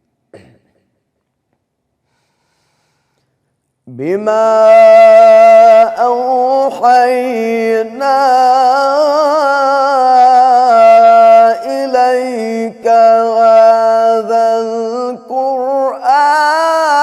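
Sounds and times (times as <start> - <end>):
man chanting melodic recitation: 3.9 - 17.0.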